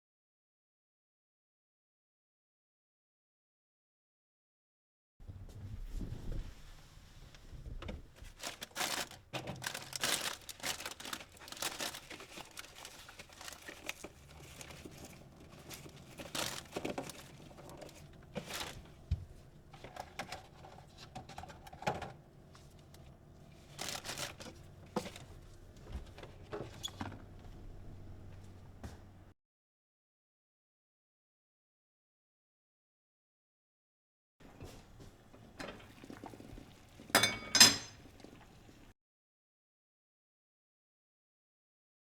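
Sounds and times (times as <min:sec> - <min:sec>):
packaging crinkling and rustling: 0:08.1 - 0:27.6.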